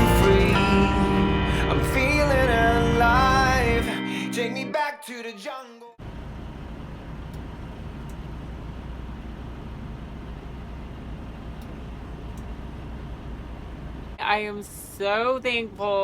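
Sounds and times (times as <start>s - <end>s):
truck engine low rumble: 0.0s - 3.9s, 6.0s - 14.2s.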